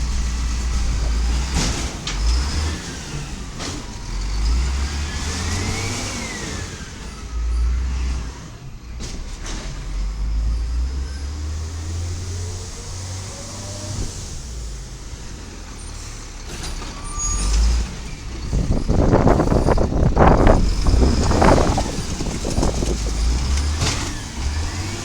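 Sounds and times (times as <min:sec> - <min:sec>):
truck engine revving: 0:00.0 - 0:25.0
hydraulic whine: 0:15.8 - 0:25.0.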